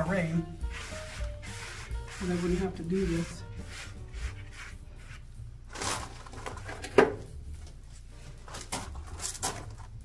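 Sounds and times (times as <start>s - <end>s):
hand rubbing plaster wall: 0.0s - 5.3s.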